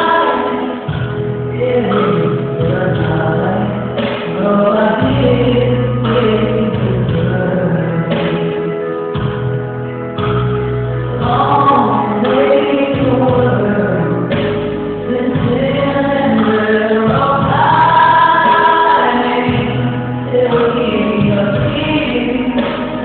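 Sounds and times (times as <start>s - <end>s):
instrumental accompaniment: 0.0s - 23.0s
choir singing gospel music: 15.3s - 22.7s.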